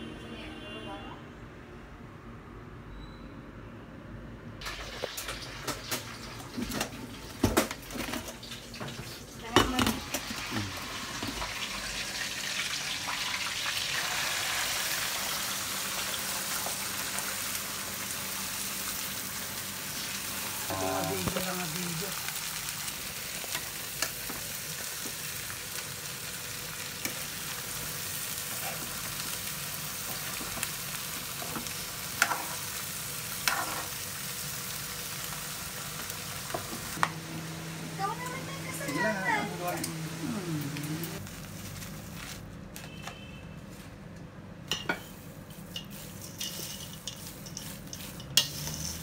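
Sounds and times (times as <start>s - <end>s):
peanuts sizzling in pan: 4.6s - 41.6s, 45.0s - 49.0s
metal spoon scraping pan: 45.7s - 49.0s.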